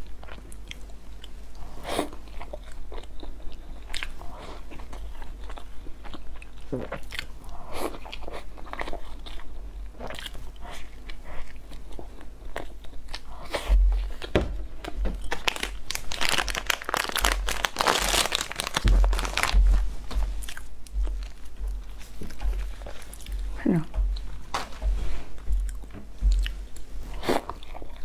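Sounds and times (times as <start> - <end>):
chewing and biting cake: 0.0 - 28.0
plastic wrapper crinkling: 15.3 - 20.3.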